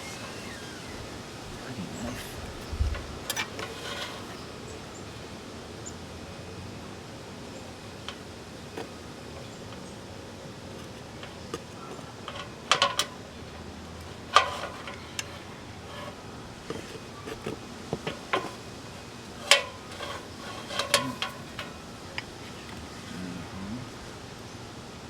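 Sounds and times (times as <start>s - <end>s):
metal ladder clanking: 1.6s - 4.5s, 10.8s - 22.8s.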